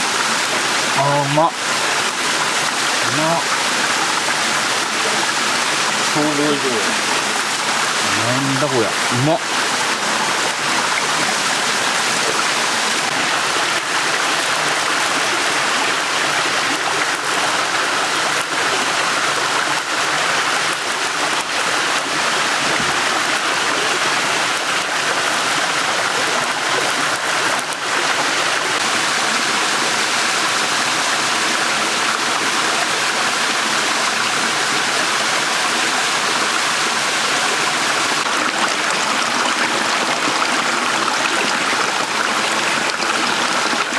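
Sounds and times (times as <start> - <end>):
stream water running: 0.0 - 43.9.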